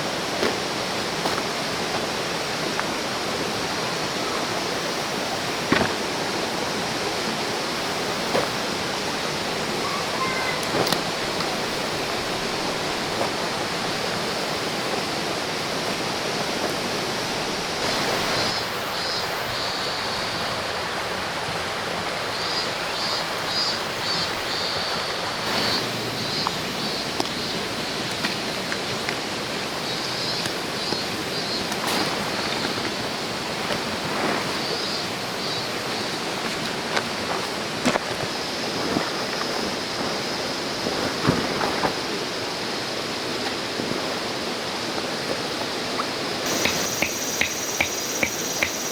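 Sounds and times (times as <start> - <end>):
river flowing over rocks: 0.0 - 18.6
high rapid chirping: 46.5 - 48.9.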